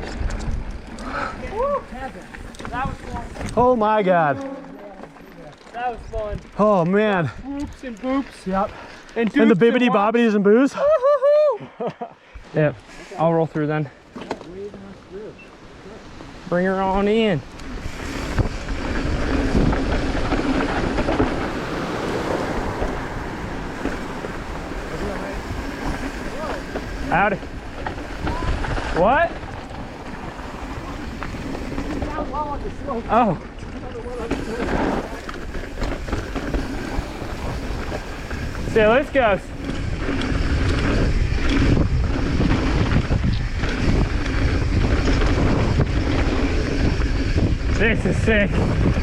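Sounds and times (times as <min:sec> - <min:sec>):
bike tyres rolling on dirt: 0:00.0 - 0:11.4, 0:12.4 - 0:49.0
wind on microphone: 0:17.4 - 0:49.0.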